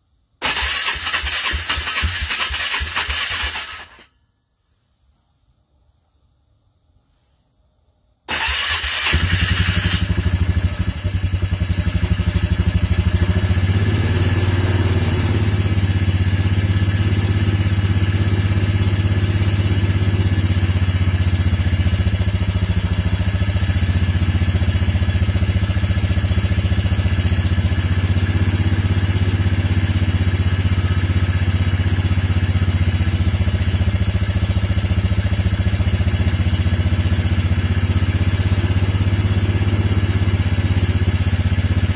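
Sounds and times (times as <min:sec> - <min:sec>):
motorcycle engine starting and idling: 0:00.4 - 0:04.1, 0:08.3 - 0:41.9.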